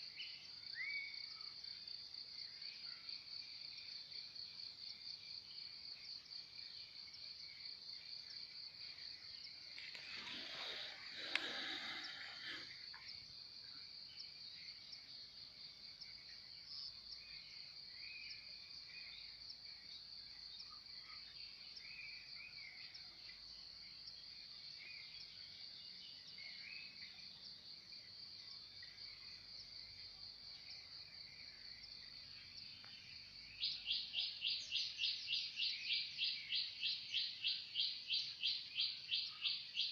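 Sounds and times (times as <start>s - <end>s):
insect trill: 0.0s - 39.9s
soft bird chirps: 8.2s - 15.2s, 28.8s - 39.9s
rapid bird chirps: 31.5s - 39.9s.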